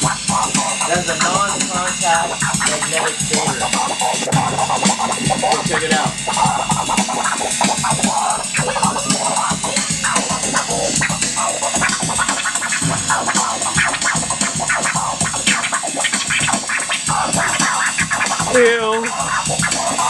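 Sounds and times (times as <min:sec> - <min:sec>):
backing beat: 0:00.0 - 0:20.0
vinyl scratching: 0:00.0 - 0:20.0.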